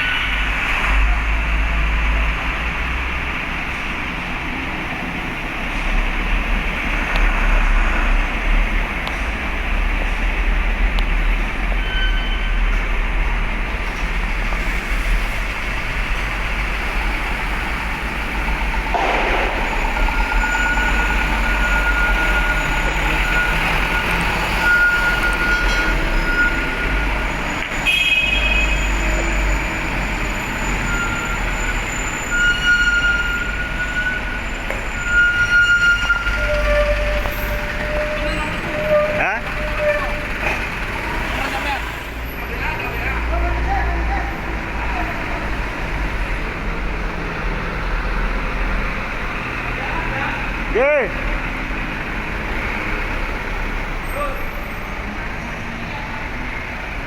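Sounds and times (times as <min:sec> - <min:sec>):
truck engines running: 0:00.0 - 0:57.0
high-pitched metallic squeals: 0:11.7 - 0:12.8, 0:19.3 - 0:42.5.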